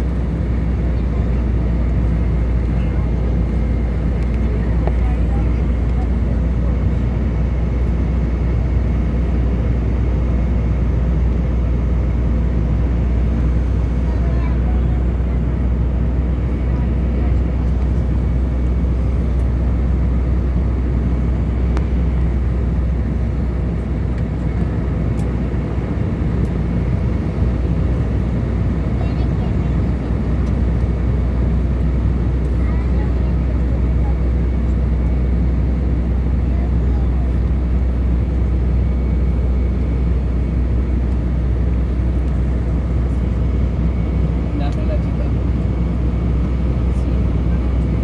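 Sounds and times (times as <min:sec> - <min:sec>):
jet airliner cabin rumble: 0:00.0 - 0:48.0.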